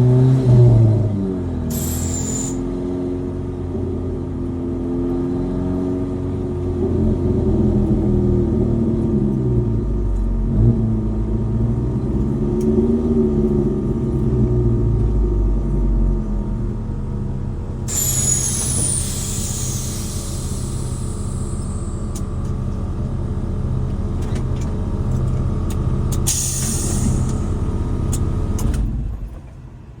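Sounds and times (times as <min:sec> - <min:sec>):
high whistle falling in pitch: 0:01.8 - 0:02.6, 0:17.9 - 0:22.0
pickup truck engine running: 0:06.0 - 0:29.5.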